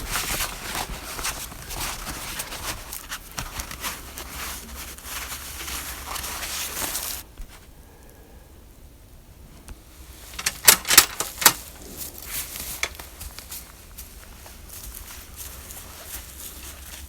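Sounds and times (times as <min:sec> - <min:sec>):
footsteps crunching through snow: 0:00.0 - 0:07.7, 0:11.6 - 0:17.0.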